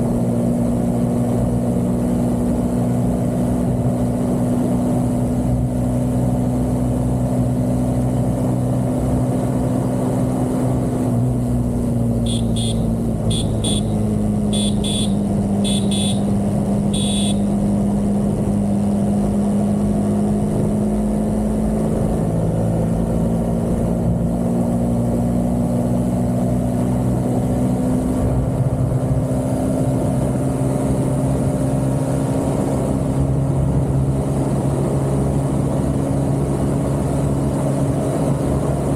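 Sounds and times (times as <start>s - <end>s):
vehicle engine running: 0.0s - 23.8s
short high beeps: 12.3s - 16.3s, 16.9s - 17.5s.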